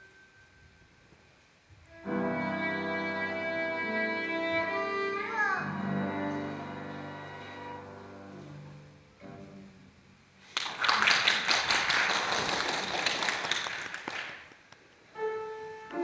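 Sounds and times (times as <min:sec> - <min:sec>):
bowed strings playing classical music: 0:01.9 - 0:10.2, 0:15.2 - 0:16.0
audience applause: 0:10.5 - 0:14.6.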